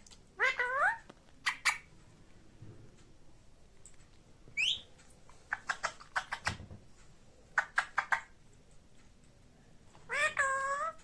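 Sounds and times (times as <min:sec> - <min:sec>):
parrot chirp: 0:00.4 - 0:01.9, 0:04.6 - 0:06.6, 0:07.6 - 0:08.4, 0:10.1 - 0:11.0.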